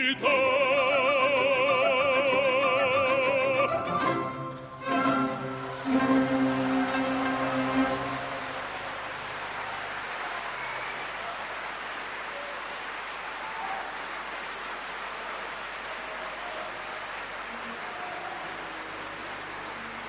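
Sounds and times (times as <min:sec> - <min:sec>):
audience applauding: 0:03.8 - 0:20.0
orchestra final chord: 0:04.8 - 0:09.0
faint voices: 0:05.7 - 0:20.0.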